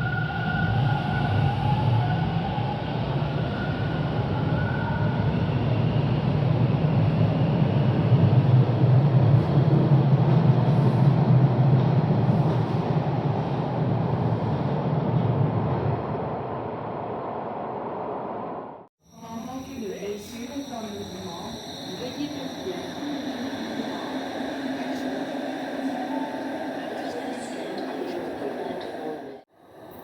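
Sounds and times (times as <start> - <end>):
train rumbling along track: 0.0 - 30.0
faint whine: 19.0 - 30.0.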